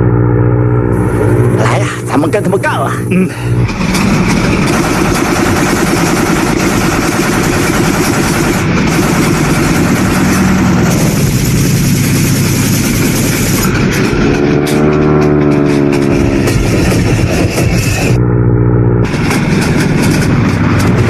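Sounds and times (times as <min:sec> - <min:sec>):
steady higher tones: 0:00.0 - 0:05.4
piston aircraft engine running: 0:00.0 - 0:21.0.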